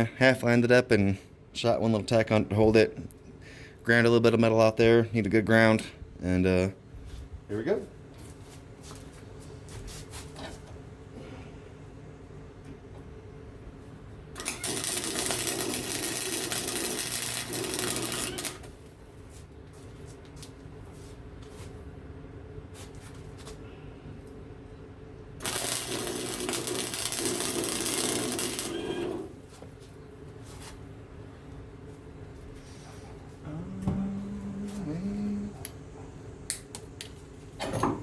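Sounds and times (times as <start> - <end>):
welder low hum: 14.4 - 18.7, 25.4 - 29.4, 33.4 - 35.8
welding arc crackling: 14.4 - 18.8, 25.4 - 29.4.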